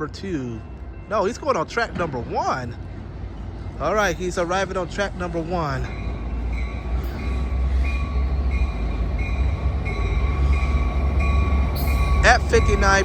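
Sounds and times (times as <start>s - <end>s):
locomotive engine rumble: 0.0s - 13.0s
thin high tone: 11.8s - 13.0s.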